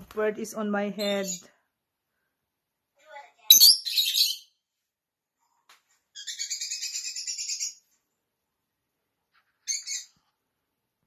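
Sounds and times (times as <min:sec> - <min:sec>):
bird chirping: 0:03.5 - 0:04.6, 0:06.1 - 0:07.9, 0:09.6 - 0:10.3.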